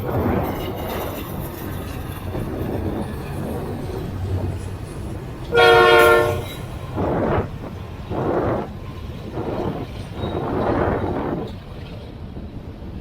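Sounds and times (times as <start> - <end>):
low rumble of train: 0.0 - 13.0
wind noise: 0.0 - 13.0
locomotive air horn blast: 5.5 - 6.7.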